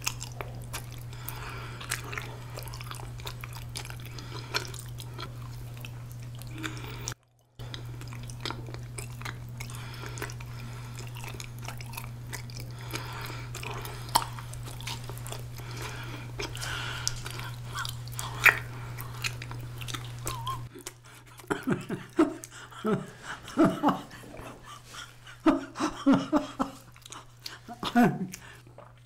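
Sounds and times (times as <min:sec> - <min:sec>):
close chewing with wet mouth clicks: 0:00.0 - 0:22.8, 0:26.6 - 0:29.0.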